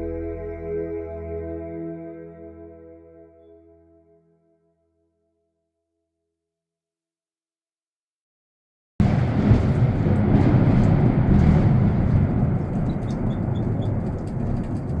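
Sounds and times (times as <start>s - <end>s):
thunder rumble: 9.0s - 15.0s.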